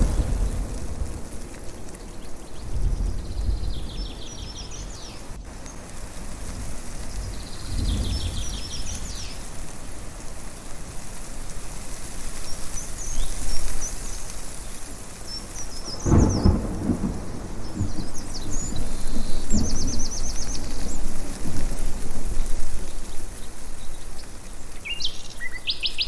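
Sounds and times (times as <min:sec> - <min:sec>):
birds chirping: 0:00.0 - 0:05.9
thunder rumbling: 0:00.0 - 0:10.0, 0:15.2 - 0:24.2
steady background hiss: 0:00.0 - 0:26.0.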